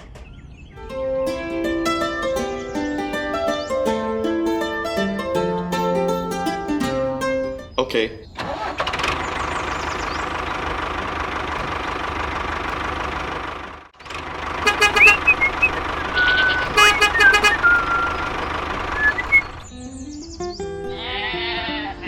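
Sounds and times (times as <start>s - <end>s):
vehicle engine running: 0.8s - 7.8s, 8.4s - 20.4s
horn toots and beeps: 14.7s - 18.2s.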